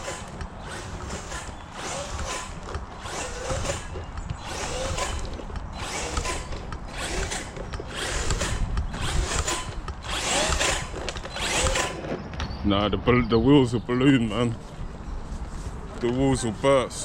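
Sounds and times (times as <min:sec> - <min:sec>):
rc truck motor whirring: 0:00.0 - 0:12.2.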